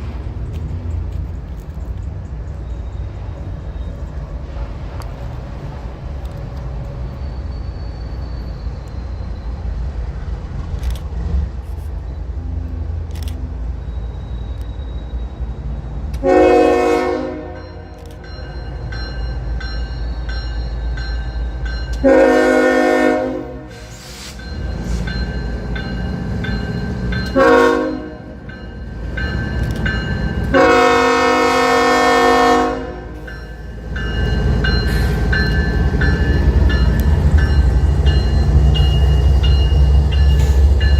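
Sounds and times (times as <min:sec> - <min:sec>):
locomotive rumble: 0:00.0 - 0:40.9
locomotive air horn: 0:16.2 - 0:17.9, 0:22.0 - 0:24.3, 0:27.4 - 0:28.4, 0:30.5 - 0:33.3.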